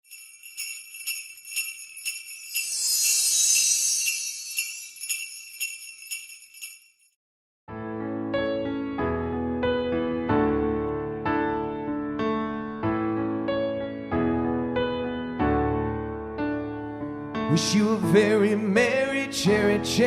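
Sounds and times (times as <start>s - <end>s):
jingle bells shaken: 0.0s - 7.2s
piano chords: 7.7s - 19.5s.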